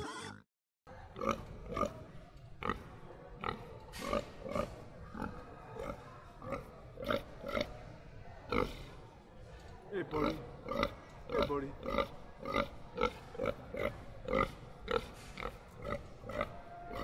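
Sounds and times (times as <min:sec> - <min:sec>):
piglets grunting: 0:10.1 - 0:17.0.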